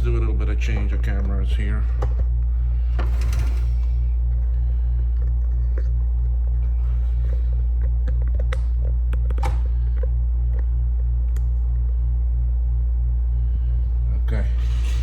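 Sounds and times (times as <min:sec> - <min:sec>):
pulsing electrical hum: 0:00.0 - 0:15.0.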